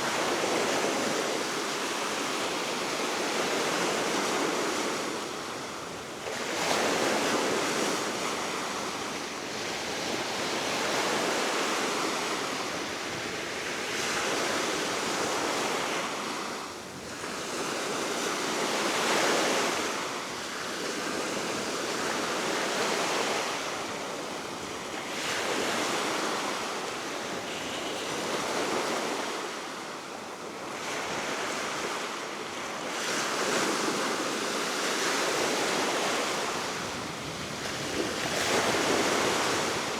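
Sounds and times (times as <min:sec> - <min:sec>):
waves washing ashore: 0:20.9 - 0:39.9.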